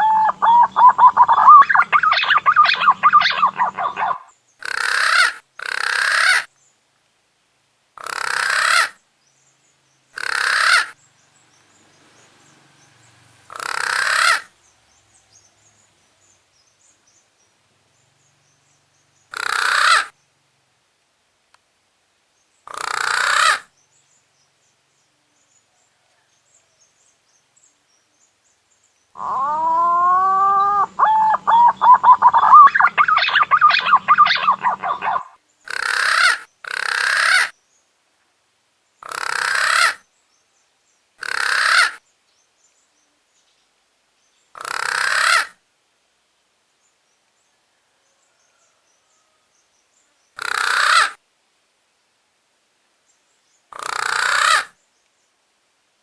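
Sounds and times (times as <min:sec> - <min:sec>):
short harsh calls: 0:00.0 - 0:04.3, 0:29.2 - 0:35.4
whistled bird lure call: 0:00.0 - 0:04.3, 0:29.2 - 0:35.4.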